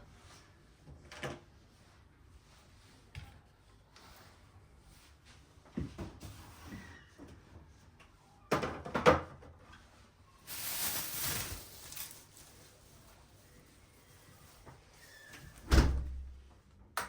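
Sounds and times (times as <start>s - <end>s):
hissing rustling noise: 10.5s - 12.8s.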